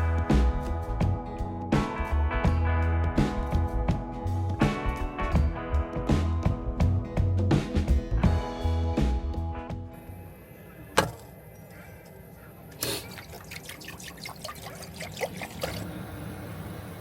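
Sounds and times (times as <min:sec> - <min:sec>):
liquid trickling and pouring: 0:12.8 - 0:16.4.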